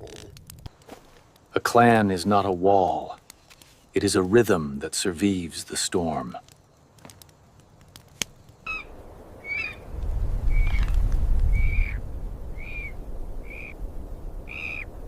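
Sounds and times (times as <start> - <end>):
bird squawking: 8.7 - 9.8.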